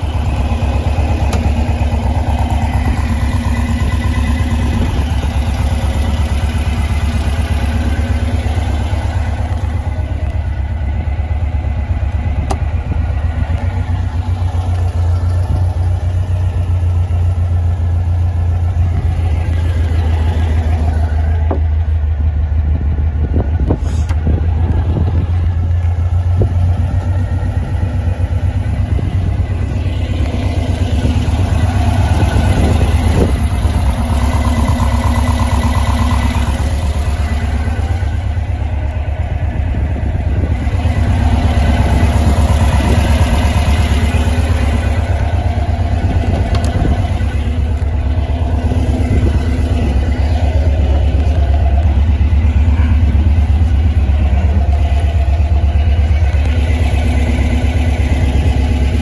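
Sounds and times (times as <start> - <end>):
car engine running: 0.0 - 59.0.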